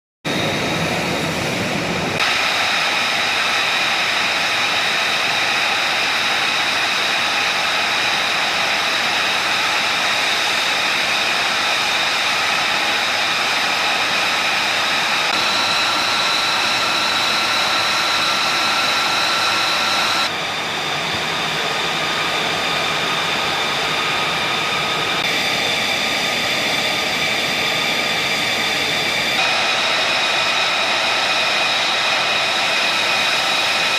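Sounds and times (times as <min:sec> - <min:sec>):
jet engine running: 0:00.3 - 0:33.9.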